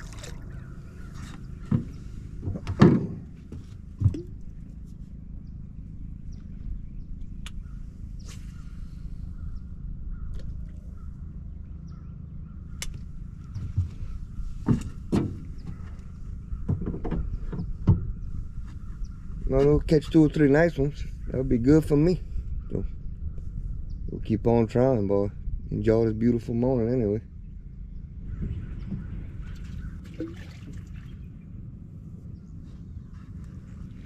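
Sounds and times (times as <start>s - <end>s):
steady low rumble: 0.0s - 34.0s
sharp knocks and thumps: 1.6s - 4.4s, 13.6s - 16.0s, 16.6s - 18.1s.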